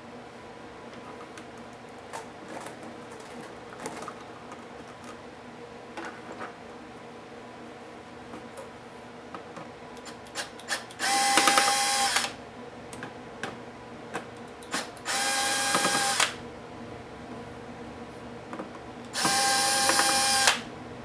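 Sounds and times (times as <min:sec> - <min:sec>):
electric screwdriver running: 0:10.7 - 0:12.4, 0:14.7 - 0:16.4, 0:19.2 - 0:20.7.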